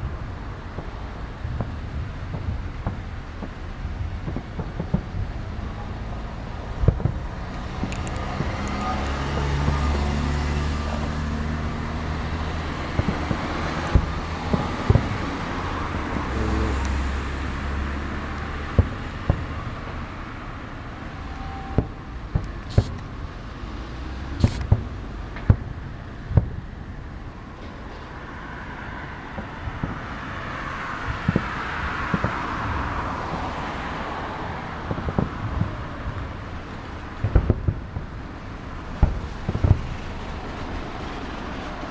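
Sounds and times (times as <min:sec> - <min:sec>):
continuous rumble: 0:00.0 - 0:41.9
firework shells bursting: 0:06.8 - 0:09.5, 0:12.9 - 0:15.4, 0:21.7 - 0:23.2, 0:24.4 - 0:26.6.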